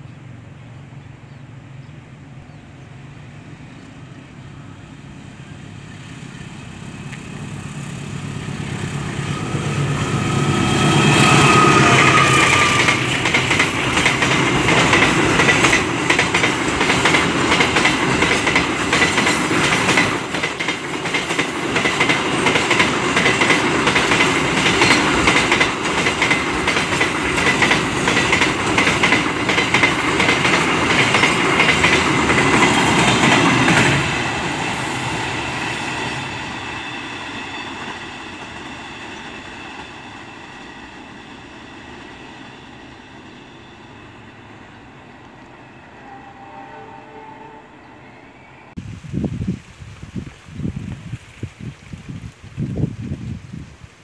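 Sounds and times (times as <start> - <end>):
faint train rumble: 0.0 - 48.8
train wheels clickety-clack: 8.5 - 41.0
faint high wheel squeal: 35.9 - 48.7.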